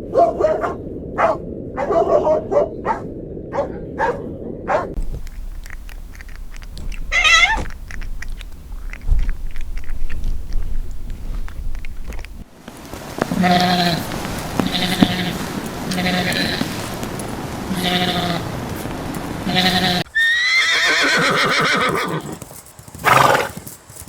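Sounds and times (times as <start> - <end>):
dog barking: 0.0 - 5.0
animal chewing: 5.0 - 20.0
sheep or goat bleating: 7.1 - 7.6, 13.2 - 17.0, 17.7 - 18.6, 19.4 - 22.0.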